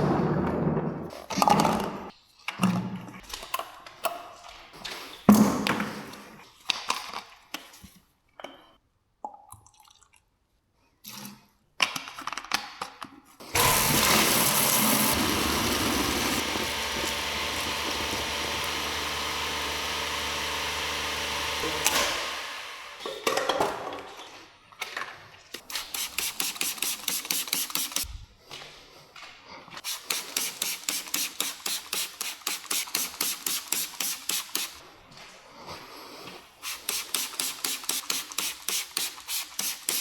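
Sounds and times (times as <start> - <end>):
pressure washer spraying water: 13.6 - 23.0, 25.7 - 28.1, 29.8 - 34.8, 36.6 - 40.0.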